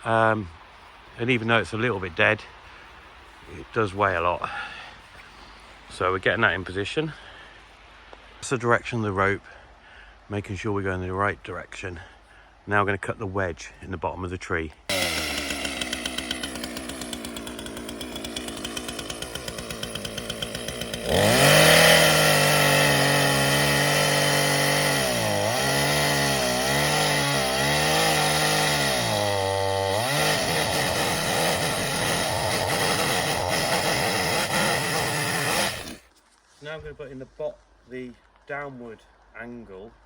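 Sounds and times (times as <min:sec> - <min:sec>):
chainsaw idling and cutting wood: 0:14.9 - 0:36.1.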